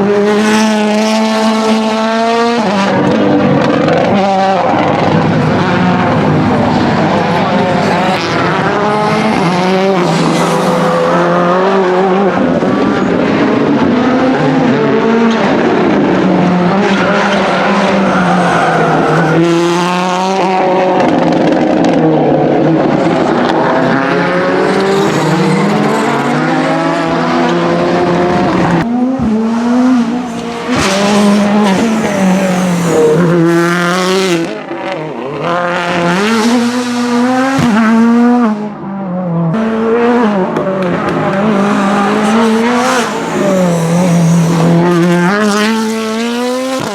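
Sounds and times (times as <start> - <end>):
rally car engine revving hard: 0.0 - 46.9
tyres squealing and skidding: 6.0 - 13.2, 16.3 - 20.6, 24.6 - 28.8, 30.0 - 34.7, 41.0 - 46.9.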